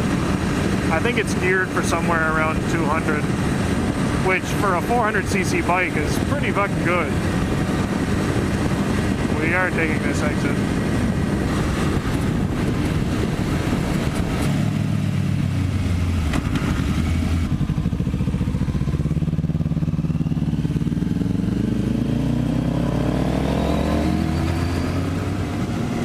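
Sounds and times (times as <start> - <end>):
wind rush: 0.0 - 18.1
motorcycle engine: 0.0 - 26.0.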